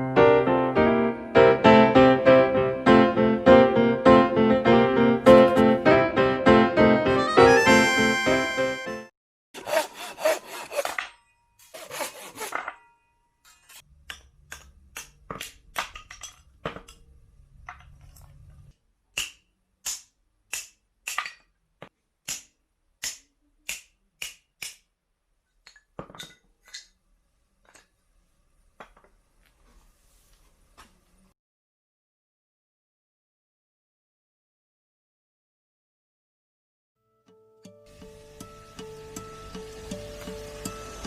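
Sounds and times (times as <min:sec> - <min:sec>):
sawing wood: 0:09.6 - 0:12.8.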